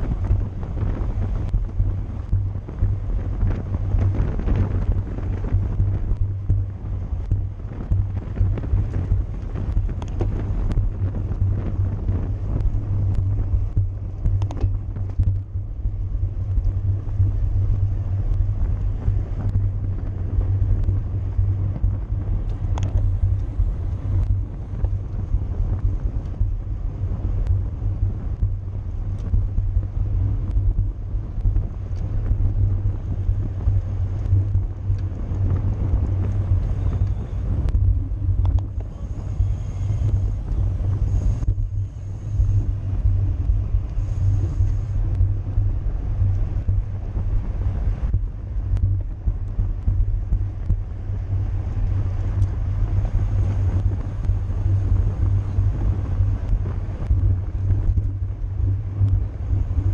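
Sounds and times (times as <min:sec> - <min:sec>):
road rumble: 0:00.0 - 0:59.9
wind buffeting: 0:00.0 - 0:59.9
faint bike clicks: 0:05.8 - 0:11.8, 0:12.4 - 0:15.6.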